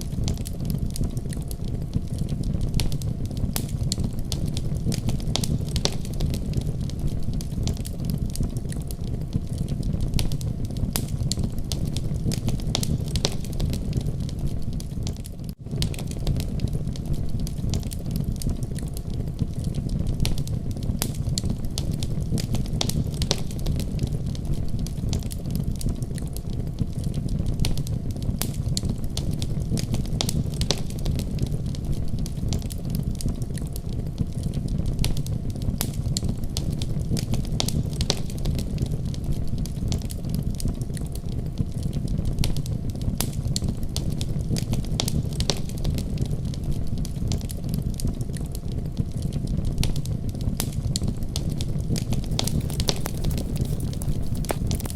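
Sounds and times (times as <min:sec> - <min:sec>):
wood fire crackling: 0:52.1 - 0:54.9.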